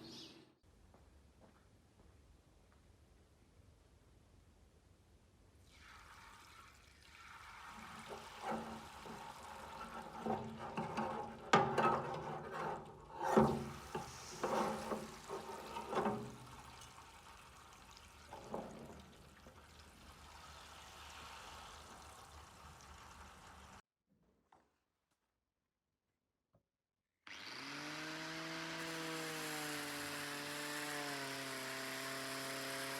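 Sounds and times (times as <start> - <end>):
liquid pouring and sloshing: 5.6 - 23.8.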